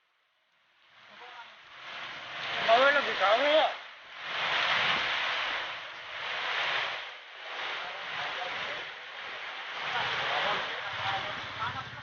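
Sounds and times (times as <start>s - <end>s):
heavy rain: 0.2s - 12.0s
gusting storm wind: 0.7s - 12.0s.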